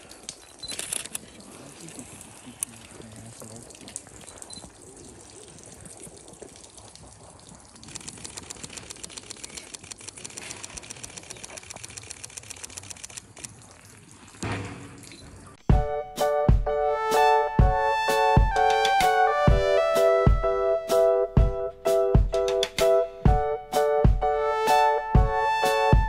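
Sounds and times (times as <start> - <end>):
water trickling and splashing: 0.0 - 15.6.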